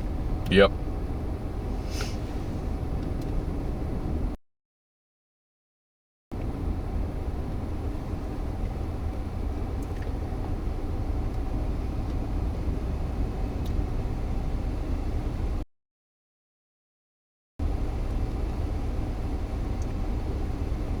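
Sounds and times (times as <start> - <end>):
car cabin rumble: 0.0 - 4.4, 6.4 - 15.6.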